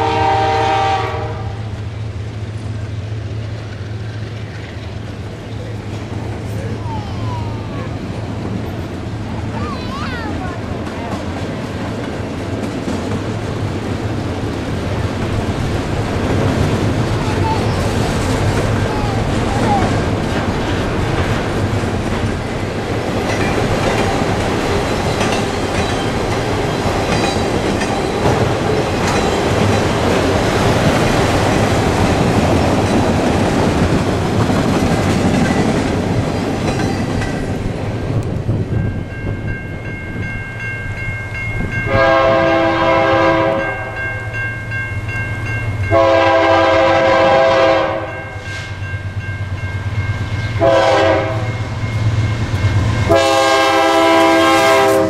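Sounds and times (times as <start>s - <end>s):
locomotive air horn: 0.0s - 1.7s, 41.9s - 44.0s, 45.9s - 48.8s, 50.6s - 51.6s, 53.1s - 55.0s
freight train rolling past: 0.0s - 55.0s
wheels clicking over rail joints: 7.9s - 39.2s.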